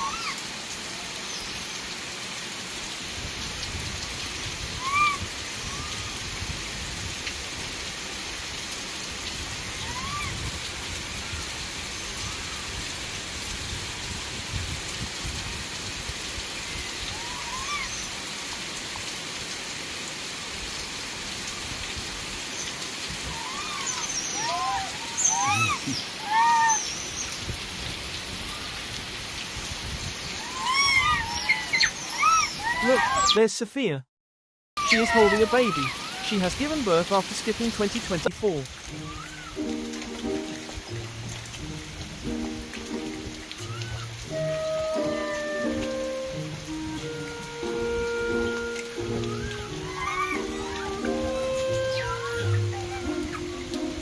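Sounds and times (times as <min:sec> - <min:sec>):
monkeys squeaky calls: 0:00.0 - 0:00.4, 0:04.7 - 0:06.2, 0:09.7 - 0:10.4, 0:17.0 - 0:18.2, 0:22.6 - 0:27.4, 0:30.4 - 0:33.4, 0:34.8 - 0:36.5, 0:39.0 - 0:39.5, 0:43.6 - 0:44.1, 0:49.0 - 0:53.6
rain-like hiss: 0:00.0 - 0:33.3, 0:34.8 - 0:54.0.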